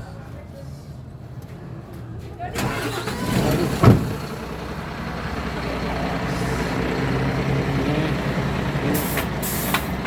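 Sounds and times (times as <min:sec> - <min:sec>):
diesel engine idling: 0:00.0 - 0:10.0
loud thump: 0:03.8 - 0:04.2.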